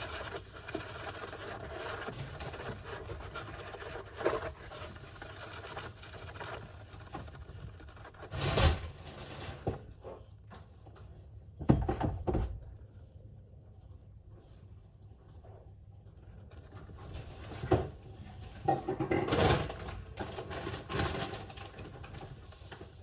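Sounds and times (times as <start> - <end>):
hamster scratching in bedding: 0.0 - 9.7.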